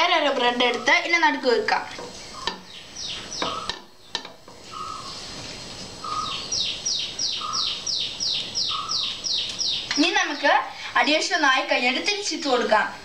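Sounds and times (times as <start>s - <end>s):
bird chirps dropping in pitch: 2.3s - 3.8s, 6.0s - 10.5s.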